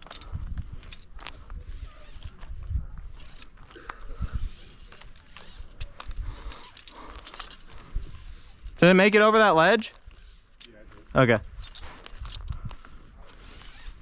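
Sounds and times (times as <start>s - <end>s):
wind rumble on microphone: 0.0s - 3.4s
rope and gear rustling: 0.0s - 14.0s.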